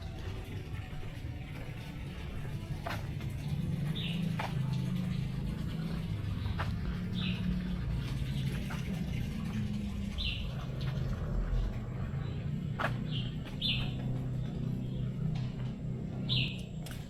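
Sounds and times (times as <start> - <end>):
steady low hum: 0.0 - 17.0
bird chirping: 3.4 - 17.0.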